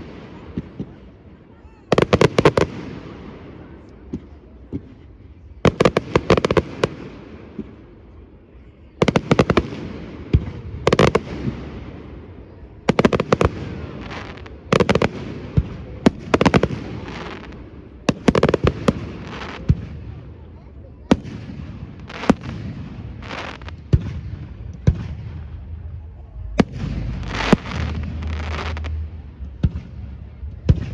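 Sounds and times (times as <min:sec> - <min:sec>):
fireworks bangs and crackling: 0:00.0 - 0:30.9
rumbling echo: 0:24.0 - 0:30.9.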